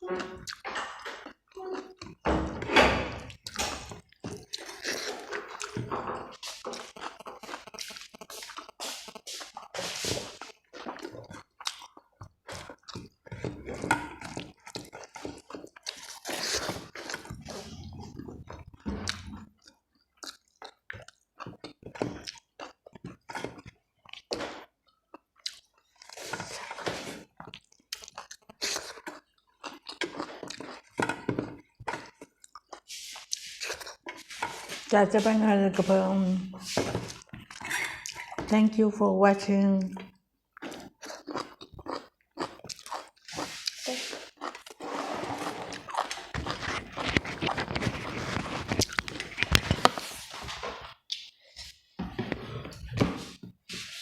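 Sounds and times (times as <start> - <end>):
person chewing food: 0.1 - 2.2, 3.2 - 34.9, 36.6 - 38.5, 40.0 - 54.0.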